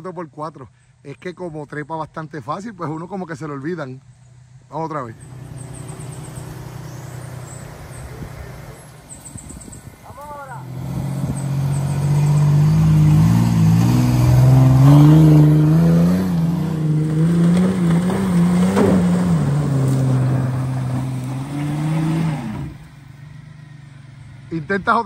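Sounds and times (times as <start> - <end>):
vehicle engine working hard: 5.0 - 25.0.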